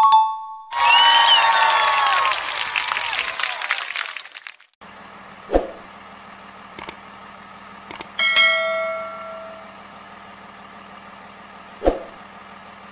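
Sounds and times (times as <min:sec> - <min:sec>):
cartoon truck engine idling: 0:00.8 - 0:12.9
mouse clicks: 0:06.8 - 0:07.0, 0:07.9 - 0:08.1
bell chime ringing: 0:08.2 - 0:09.8.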